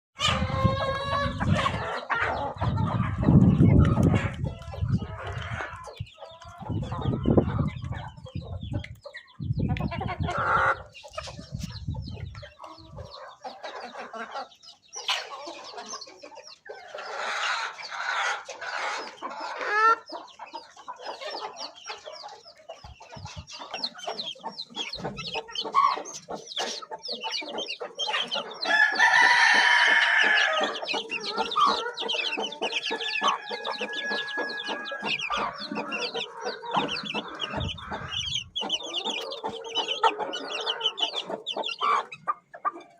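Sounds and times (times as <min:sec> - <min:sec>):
chickens clucking: 0:00.2 - 0:42.9
rooster crowing: 0:28.6 - 0:36.3.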